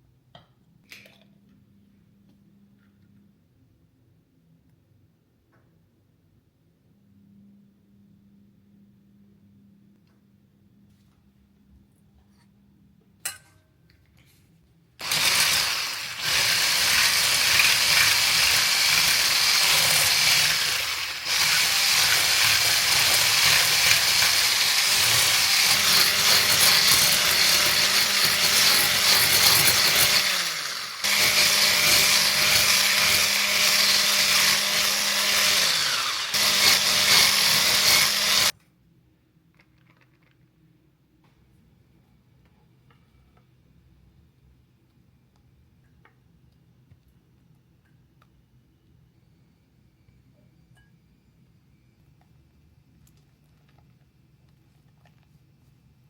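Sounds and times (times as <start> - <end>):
electric kitchen mixer running: 15.0 - 38.5.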